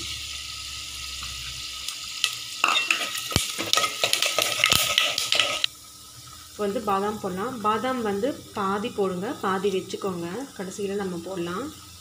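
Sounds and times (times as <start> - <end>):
nuts sizzling in hot fat: 0.0 - 12.0
ladle scraping and clinking pot: 2.6 - 5.7.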